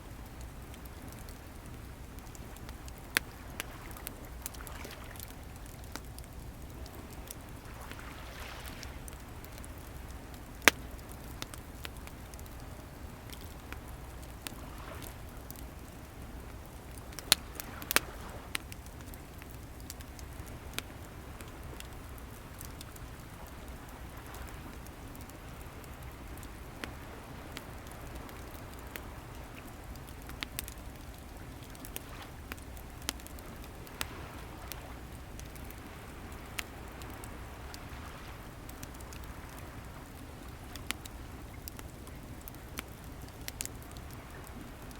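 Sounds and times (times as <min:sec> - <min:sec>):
wood bonfire crackling: 0:00.0 - 0:44.9
ocean waves rumbling: 0:06.9 - 0:10.1.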